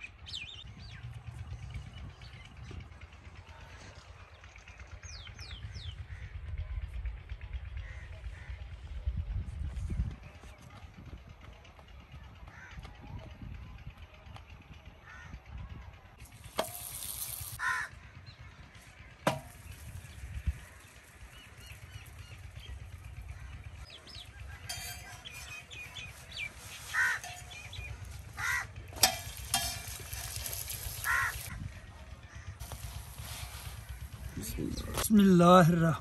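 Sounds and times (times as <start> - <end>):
crows cawing: 12.5 - 12.8, 15.0 - 15.3, 17.6 - 18.2, 26.8 - 28.8, 29.8 - 31.6
flatbread sizzling on iron griddle: 16.4 - 17.6, 29.0 - 31.5.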